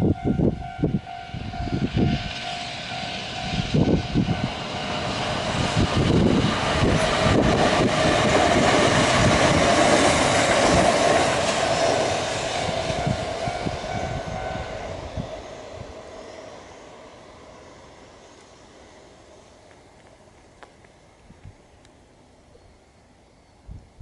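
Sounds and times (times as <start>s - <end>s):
crossing warning bell: 0.0s - 7.5s, 12.6s - 17.0s
train passing: 0.0s - 24.0s.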